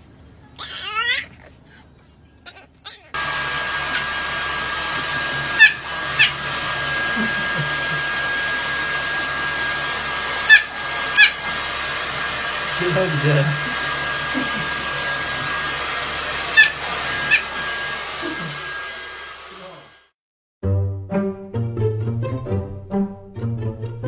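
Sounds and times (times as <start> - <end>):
puppy yipping: 0.6 - 1.4, 5.5 - 6.4, 10.4 - 11.4, 16.5 - 17.6
puppy whining: 0.6 - 1.6, 5.5 - 7.1, 10.4 - 11.5, 16.4 - 18.8
hair dryer running: 3.2 - 20.2.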